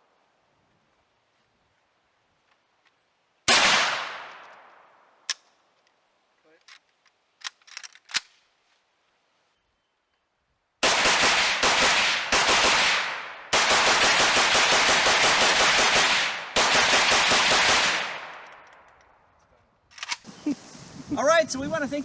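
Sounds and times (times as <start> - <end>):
rifle firing rapid shots: 3.5 - 4.3, 10.8 - 18.6.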